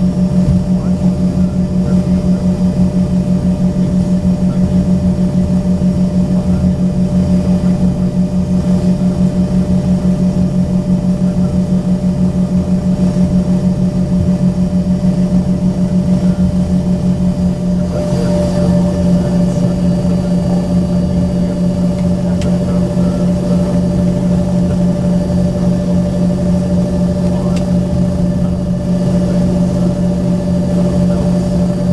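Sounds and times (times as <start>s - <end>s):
jet engines idling drone: 0.0s - 31.9s.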